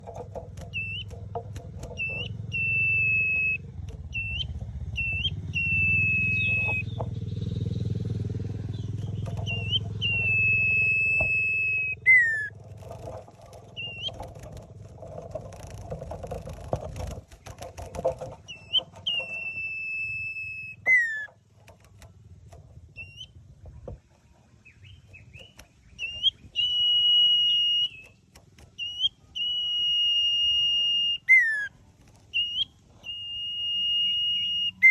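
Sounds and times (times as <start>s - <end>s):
bird whistling song: 0.6s - 12.6s, 13.5s - 14.6s, 18.2s - 21.4s, 22.9s - 23.4s, 24.5s - 34.9s.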